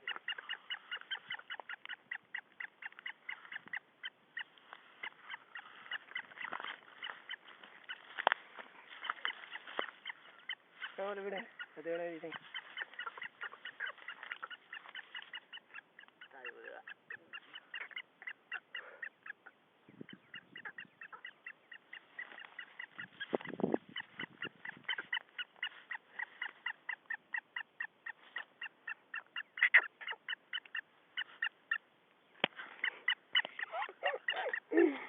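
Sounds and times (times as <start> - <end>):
birds chattering: 0.0 - 35.0.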